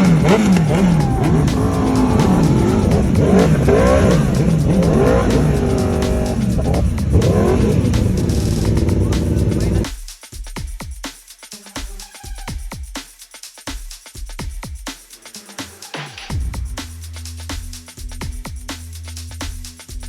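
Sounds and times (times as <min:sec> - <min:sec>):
motorcycle engines revving: 0:00.0 - 0:09.8.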